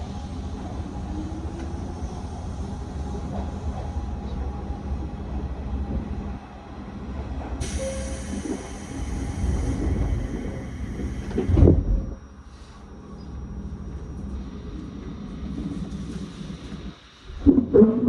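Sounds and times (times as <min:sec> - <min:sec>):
train interior hum and rumble: 0:00.0 - 0:18.0
train doors closing thud: 0:11.3 - 0:12.1.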